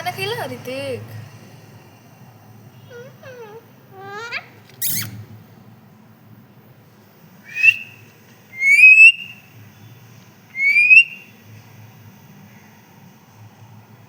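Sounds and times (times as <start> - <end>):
parrot rising whistles: 2.9 - 5.2, 7.5 - 9.4, 10.5 - 11.3.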